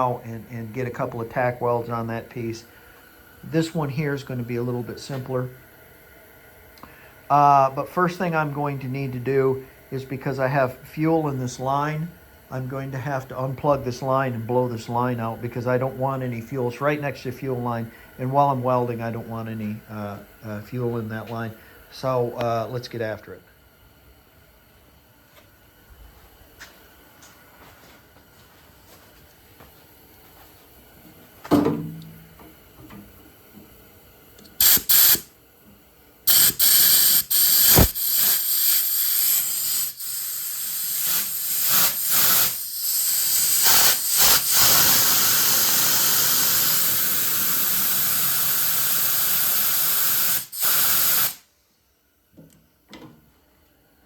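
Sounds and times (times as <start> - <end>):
clunk: 31.4 - 33.0, 52.4 - 53.2
compressed air hissing: 34.2 - 35.4, 36.2 - 51.6
short air blasts: 34.6 - 35.4, 36.3 - 51.7.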